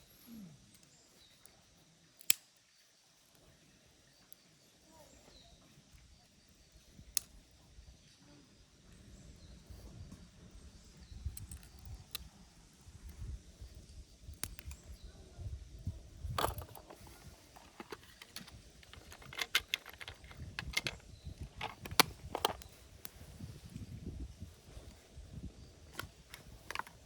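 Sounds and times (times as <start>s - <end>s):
sharp clicks and light knocks: 16.4s - 22.7s, 25.9s - 27.0s.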